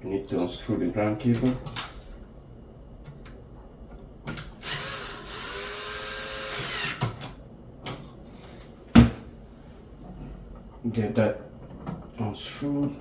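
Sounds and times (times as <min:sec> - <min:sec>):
cordless drill running: 0:04.6 - 0:07.0.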